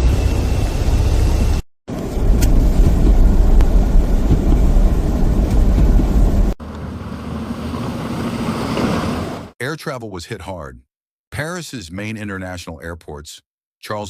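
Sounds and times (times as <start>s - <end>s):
wind on microphone rumbling: 0.0s - 6.6s.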